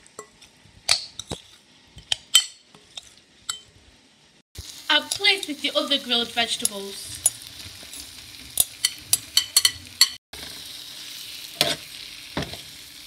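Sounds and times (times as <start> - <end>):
vegetables sizzling on grill pan: 3.9 - 13.0.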